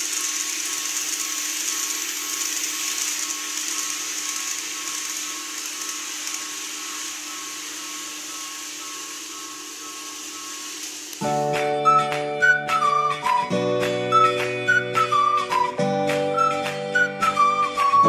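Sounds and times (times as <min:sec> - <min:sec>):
model train motor whir: 0:00.0 - 0:11.4
wheels hissing on rail: 0:00.0 - 0:13.4.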